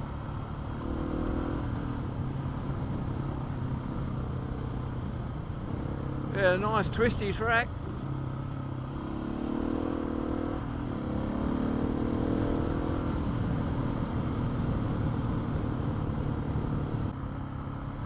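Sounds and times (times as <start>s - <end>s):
road and wind noise: 0.0s - 18.0s
motorcycle engine revving: 7.8s - 15.4s.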